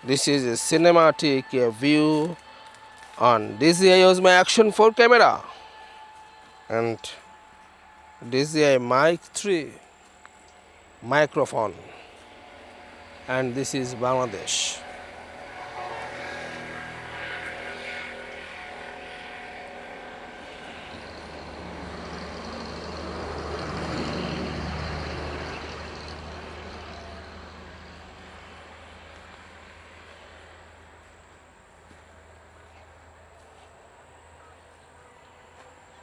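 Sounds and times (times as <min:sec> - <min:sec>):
engine rumble passing by: 0:09.7 - 0:34.9.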